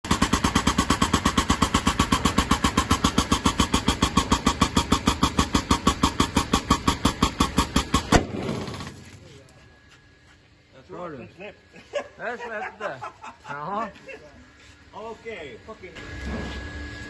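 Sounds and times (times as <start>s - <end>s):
hydraulic pump pulsing: 0.0s - 9.0s.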